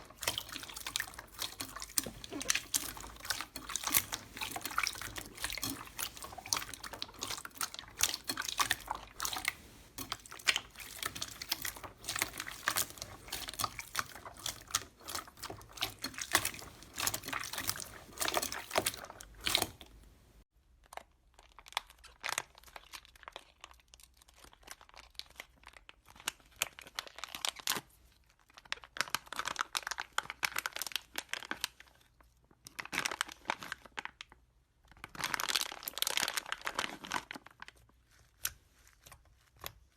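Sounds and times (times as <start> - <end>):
slime squeezed with sticky crackles: 0.0 - 20.0.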